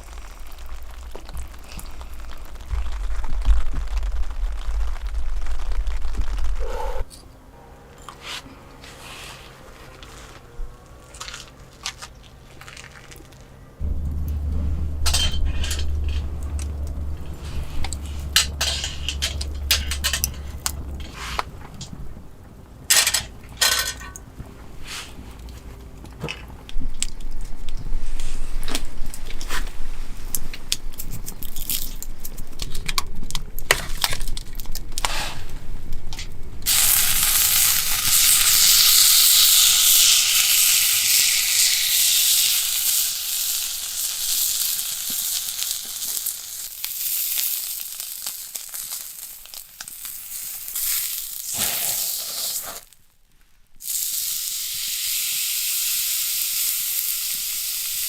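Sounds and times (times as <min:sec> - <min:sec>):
crunching and cracking clicks: 0:00.0 - 0:06.7, 0:10.0 - 0:14.6, 0:30.3 - 0:35.1
meat sizzling: 0:00.0 - 0:06.9, 0:36.6 - 0:53.1, 0:53.8 - 0:58.0.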